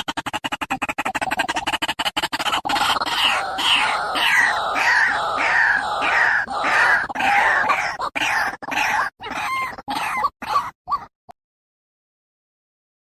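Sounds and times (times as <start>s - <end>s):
waterhen calling harshly: 2.7s - 10.7s.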